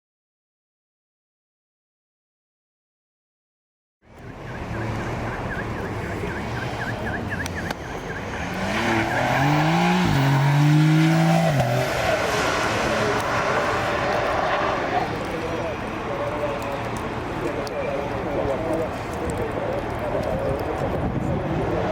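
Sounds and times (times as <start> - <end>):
rally car engine accelerating: 4.5 - 17.2.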